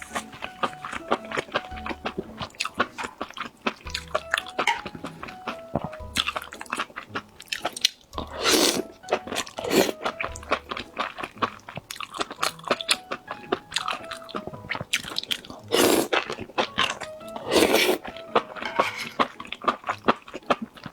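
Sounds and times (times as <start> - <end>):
background music with bass pulse: 0.0 - 3.1, 3.9 - 7.5, 8.2 - 11.7
chewing crisp food: 0.0 - 20.9.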